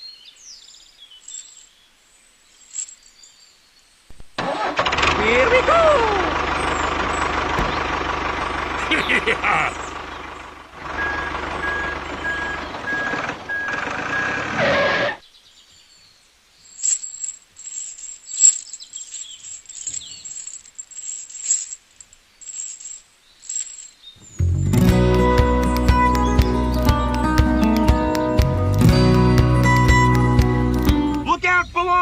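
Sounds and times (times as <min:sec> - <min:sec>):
rapid steady beeping: 0:11.0 - 0:14.6.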